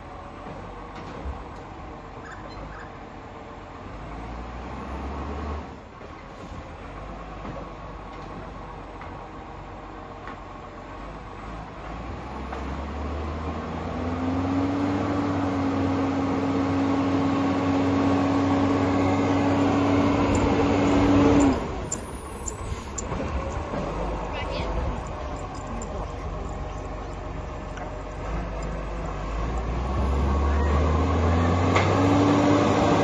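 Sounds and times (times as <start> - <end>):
garbage truck engine revving: 10.7 - 33.0
hydraulic whine: 18.3 - 32.6.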